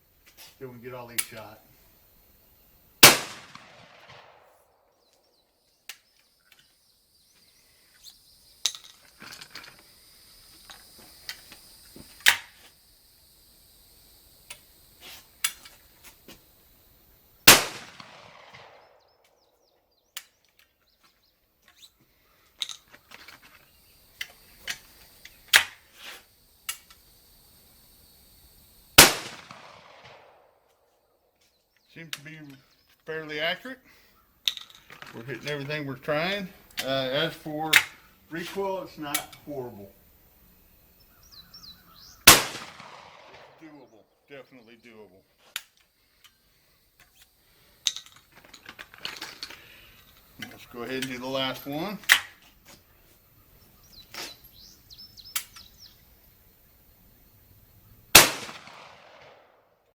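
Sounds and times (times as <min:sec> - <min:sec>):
shotgun shots with echo: 0:03.0 - 0:04.6, 0:17.5 - 0:19.1, 0:29.0 - 0:30.6, 0:42.2 - 0:43.7, 0:58.1 - 0:59.6.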